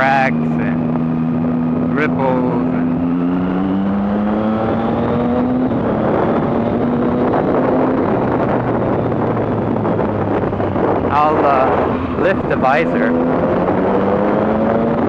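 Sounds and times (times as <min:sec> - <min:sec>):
motorcycle engine accelerating: 0:00.0 - 0:15.0
wind rush on microphone: 0:00.0 - 0:15.0.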